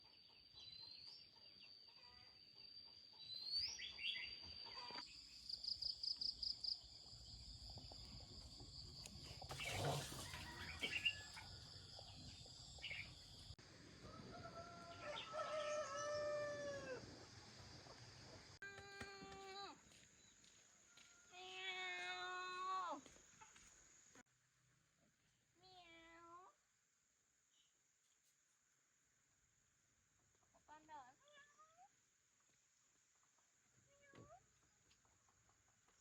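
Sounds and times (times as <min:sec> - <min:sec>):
rooster crowing: 0:10.1 - 0:11.8, 0:14.0 - 0:17.1.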